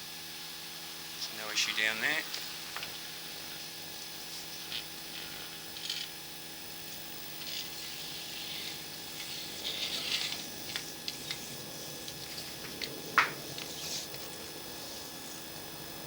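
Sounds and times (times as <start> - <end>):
electrical hum: 0.0 - 16.0
gear scratching and rattling: 2.3 - 15.9
ratchet-like clicks: 3.9 - 14.5.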